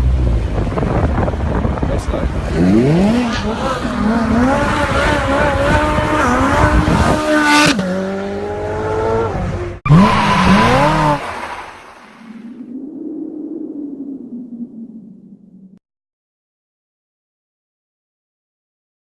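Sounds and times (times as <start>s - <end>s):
car engines revving hard: 0.0s - 11.9s
tyre squeal: 9.9s - 11.3s.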